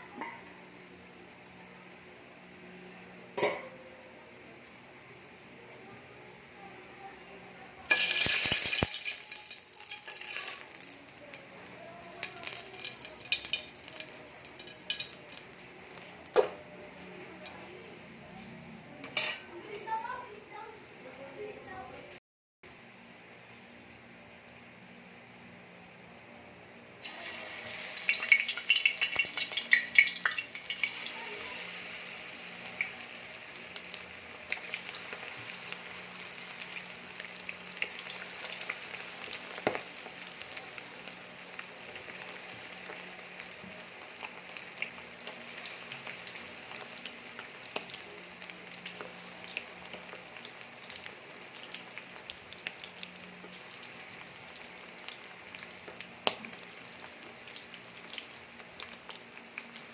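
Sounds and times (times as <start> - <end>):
chicken sizzling in hot oil: 7.9 - 16.6, 27.0 - 59.9.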